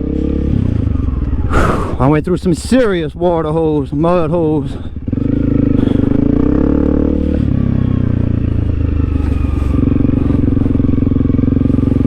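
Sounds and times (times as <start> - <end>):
motorcycle engine under throttle: 0.0 - 12.0.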